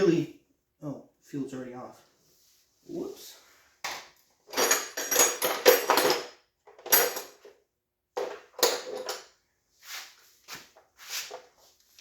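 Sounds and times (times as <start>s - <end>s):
metal tools clanking: 4.5s - 7.5s, 8.2s - 9.3s.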